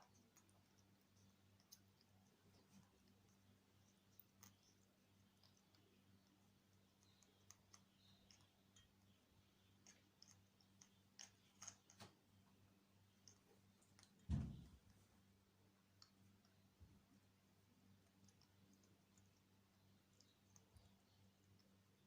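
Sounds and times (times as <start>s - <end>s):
dull thump: 14.3s - 14.8s.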